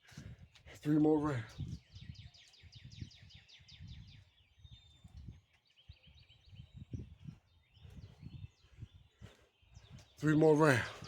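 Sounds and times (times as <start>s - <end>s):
birdsong: 0.0s - 11.0s.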